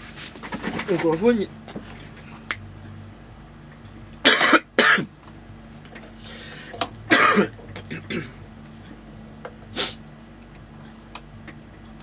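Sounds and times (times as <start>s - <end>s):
person coughing: 7.1s - 8.3s.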